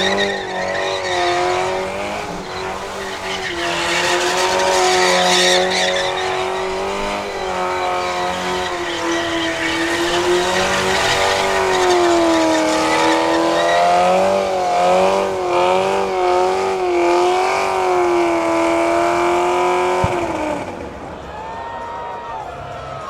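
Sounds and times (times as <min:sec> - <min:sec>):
car engine at high revs: 0:00.0 - 0:21.3
spinning tires hissing: 0:00.0 - 0:21.4.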